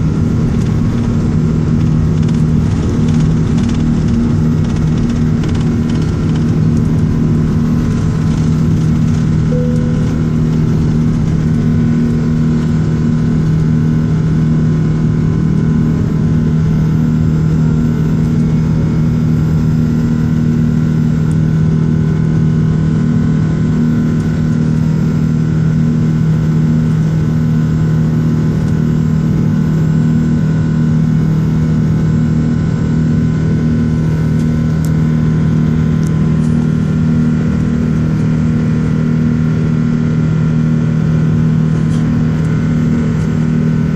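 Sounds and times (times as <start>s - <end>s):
jet engines droning: 6.9s - 15.9s.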